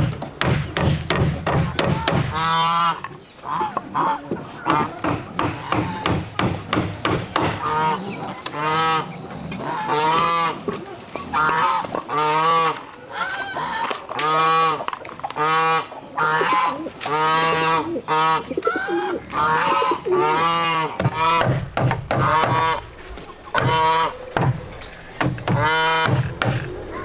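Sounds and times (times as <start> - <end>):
sharp knocks: 0.0 - 2.4, 4.6 - 7.7, 21.0 - 22.8, 23.5 - 26.7
geese honking: 2.2 - 6.0, 7.6 - 27.0.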